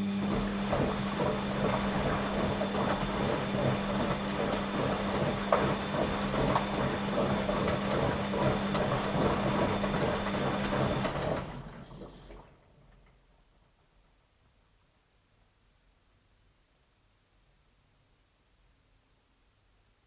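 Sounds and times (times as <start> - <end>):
washing machine humming: 0.0 - 13.8.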